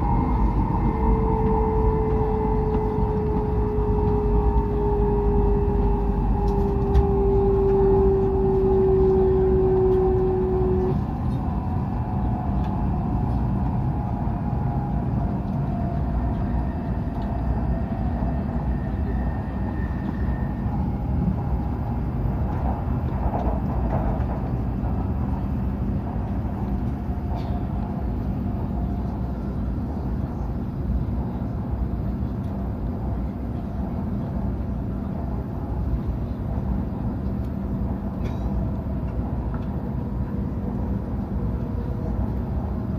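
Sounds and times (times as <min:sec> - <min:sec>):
steady tone: 0:00.0 - 0:11.8
faint falling whines: 0:00.0 - 0:23.6
train running at speed: 0:00.0 - 0:42.9.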